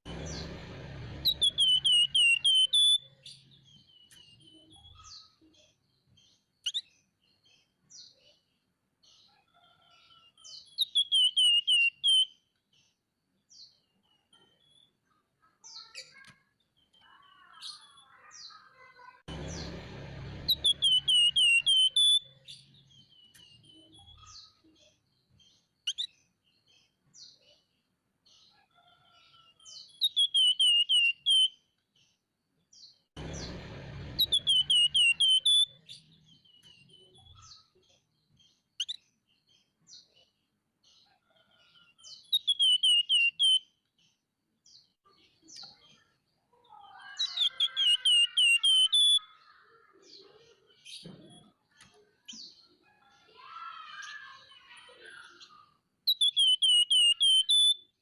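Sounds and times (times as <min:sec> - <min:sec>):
songbird rapid falling chirps: 0:01.2 - 0:05.3, 0:10.5 - 0:12.4, 0:19.4 - 0:24.6, 0:32.8 - 0:37.4, 0:42.0 - 0:43.6, 0:46.9 - 0:49.5, 0:56.1 - 0:57.9
short bird chirps and calls: 0:01.2 - 0:19.8, 0:20.4 - 0:32.2, 0:34.2 - 0:58.0.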